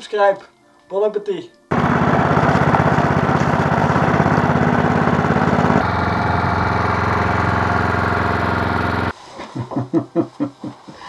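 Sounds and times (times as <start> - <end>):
small engine running: 1.7 - 9.1.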